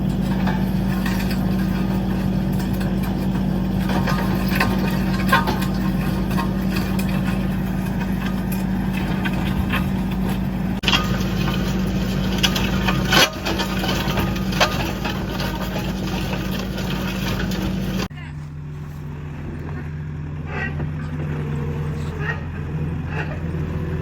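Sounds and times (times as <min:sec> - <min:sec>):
sharp knocks and clanks: 0:00.0 - 0:18.1
skid steer engine running: 0:00.0 - 0:24.0.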